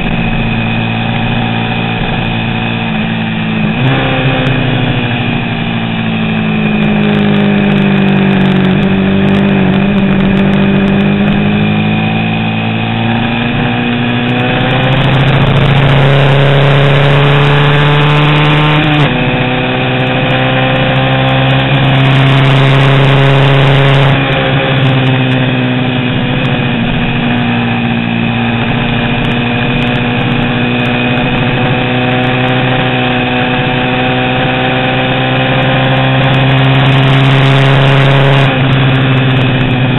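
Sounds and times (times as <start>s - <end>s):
racing motorcycle engine revving: 0.0s - 39.9s.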